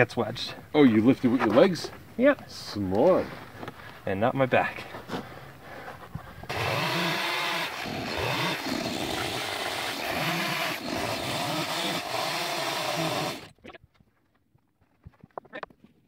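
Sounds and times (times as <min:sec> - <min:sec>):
chainsaw cutting log: 0:06.5 - 0:13.6.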